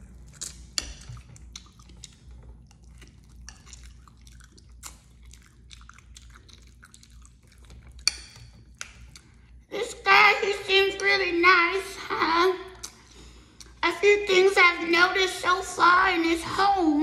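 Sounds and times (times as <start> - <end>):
open-mouthed chewing: 0.0 - 9.7.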